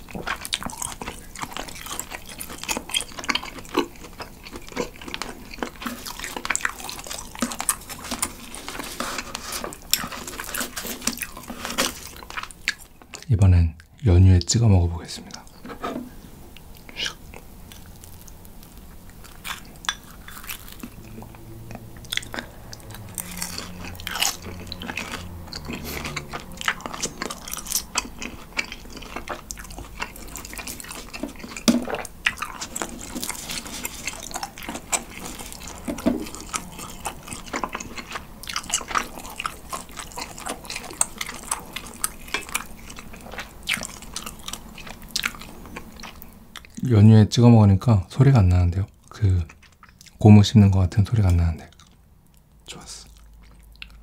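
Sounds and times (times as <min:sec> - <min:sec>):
wet chewing clicks and smacks: 0:00.0 - 0:14.6, 0:16.6 - 0:46.8, 0:48.9 - 0:50.2, 0:51.2 - 0:54.0.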